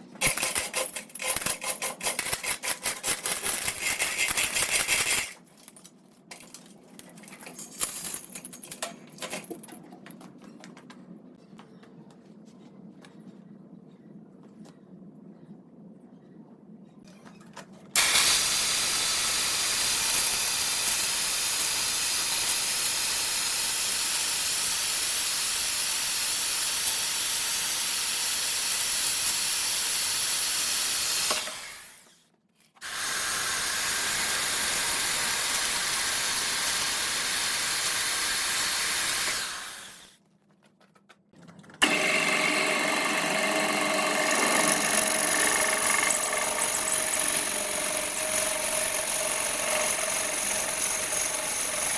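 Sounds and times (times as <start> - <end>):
wood lathe cutting hiss: 18.0 - 31.9, 32.8 - 40.1, 41.8 - 51.9.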